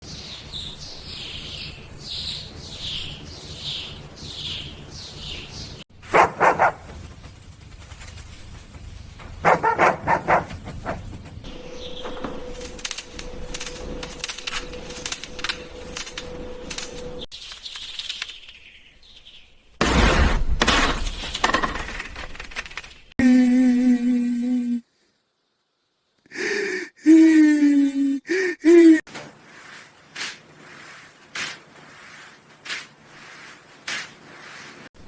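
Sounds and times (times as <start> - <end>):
dog barking: 6.0 - 6.9, 9.4 - 11.2.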